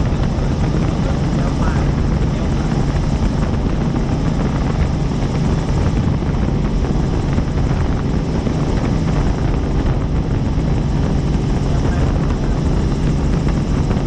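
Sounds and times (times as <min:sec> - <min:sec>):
helicopter rotor and engine noise: 0:00.0 - 0:14.0.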